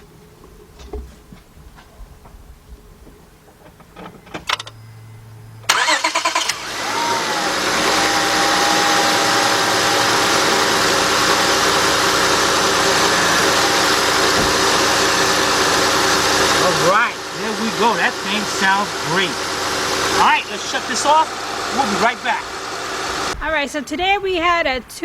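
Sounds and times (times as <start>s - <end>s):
car engine idling: 4.7s - 24.5s.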